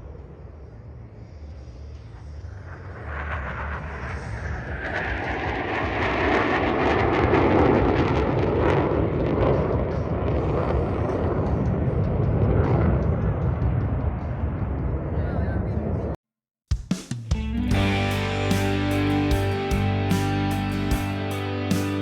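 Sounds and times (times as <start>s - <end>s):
fighter jet roar: 2.8s - 11.4s.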